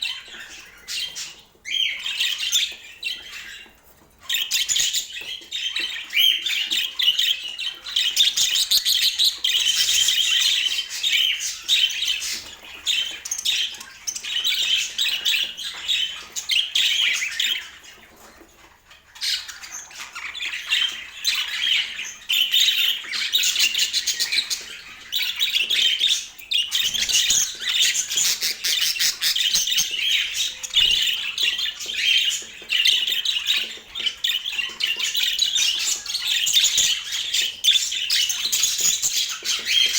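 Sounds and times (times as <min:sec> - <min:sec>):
budgerigars chattering: 0:19.2 - 0:39.9.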